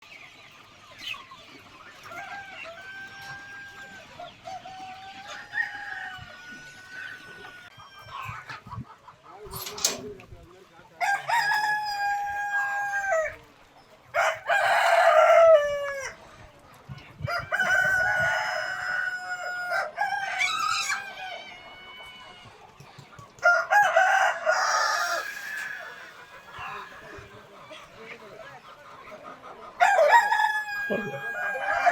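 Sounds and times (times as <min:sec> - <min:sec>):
hens clucking: 0:00.0 - 0:31.9
roosters crowing: 0:02.0 - 0:08.5, 0:11.0 - 0:13.4, 0:14.1 - 0:16.2, 0:17.2 - 0:22.6, 0:23.4 - 0:27.6, 0:29.8 - 0:31.9.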